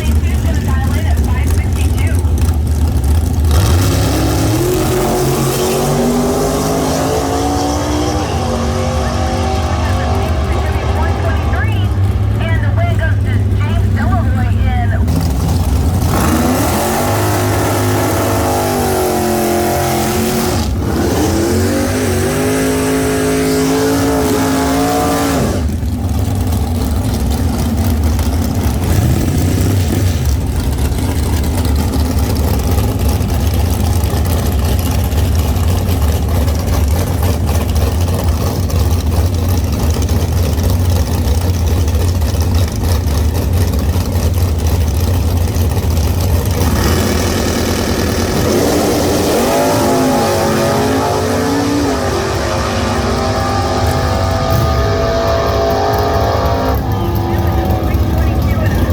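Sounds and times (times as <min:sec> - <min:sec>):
car engine accelerating: 0:00.0 - 0:58.9.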